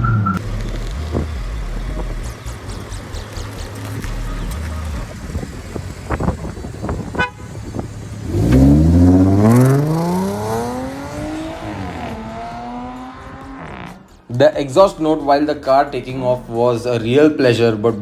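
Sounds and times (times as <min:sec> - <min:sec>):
supercharger whine: 0:00.0 - 0:14.0
car engine accelerating hard: 0:00.0 - 0:14.2.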